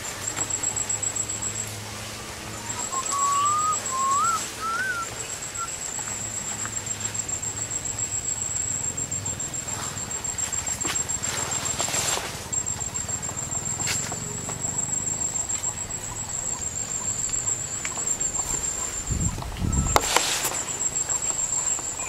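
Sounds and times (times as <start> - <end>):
steady high-pitched whine: 0.0 - 22.0
bird whistling rising notes: 0.4 - 22.0.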